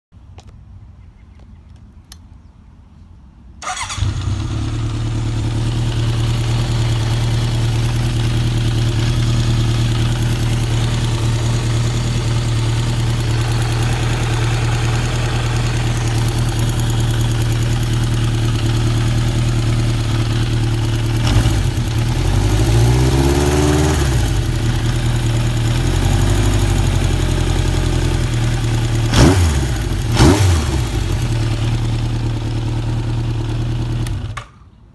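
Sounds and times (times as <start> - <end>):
engine ticking: 3.6 - 23.0
motorcycle engine revving: 3.6 - 34.6
motorcycle engine idling: 3.6 - 34.8.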